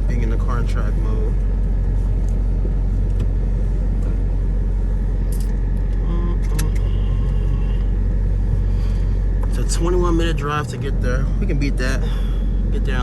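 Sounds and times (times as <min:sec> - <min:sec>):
engine low drone from cabin: 0:00.0 - 0:13.0.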